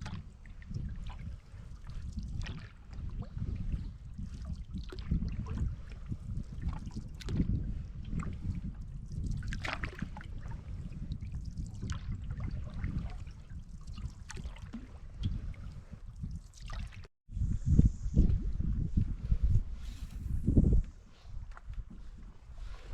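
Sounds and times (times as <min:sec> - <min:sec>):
water splashing against canoe: 0:00.0 - 0:17.1
wind buffeting microphone: 0:00.0 - 0:22.9.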